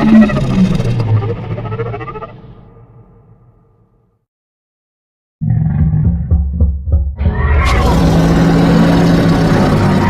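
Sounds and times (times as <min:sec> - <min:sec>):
deep rumbling creature roar: 0:05.4 - 0:10.0.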